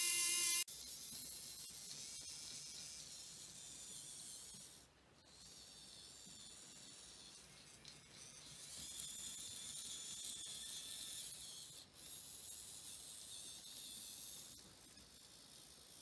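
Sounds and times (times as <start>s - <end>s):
high-pitched hiss: 0.0s - 0.6s.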